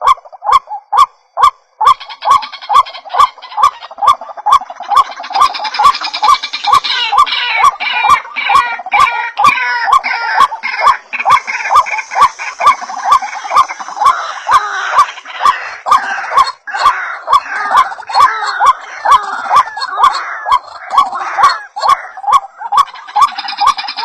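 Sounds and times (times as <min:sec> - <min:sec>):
other birds calling: 0:00.0 - 0:24.0
waterhens calling: 0:00.0 - 0:24.0.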